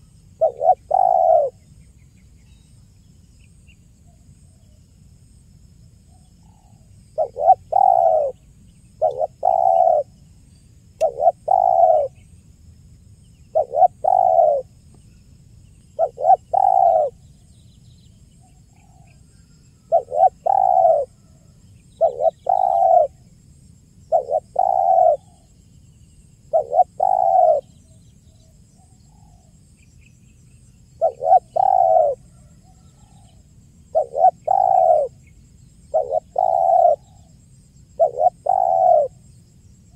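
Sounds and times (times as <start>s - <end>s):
dove cooing: 0.0s - 1.6s, 6.4s - 8.4s, 9.0s - 10.2s, 11.0s - 12.2s, 13.5s - 14.7s, 16.0s - 17.2s, 19.8s - 21.4s, 22.0s - 23.2s, 24.1s - 25.5s, 26.5s - 27.7s, 31.0s - 35.2s, 35.9s - 39.2s.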